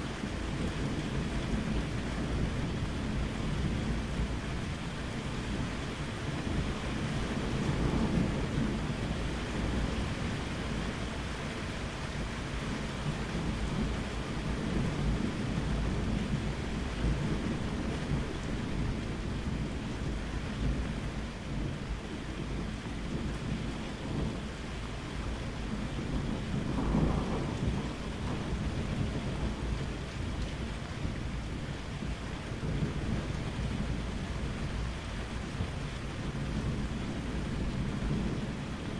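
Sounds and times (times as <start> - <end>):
steady rain: 0.0 - 38.9
rolling thunder: 0.2 - 11.6, 12.2 - 38.9.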